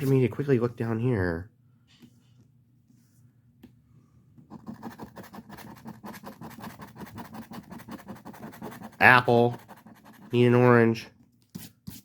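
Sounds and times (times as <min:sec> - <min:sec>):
scratching lottery ticket: 0:04.5 - 0:10.8.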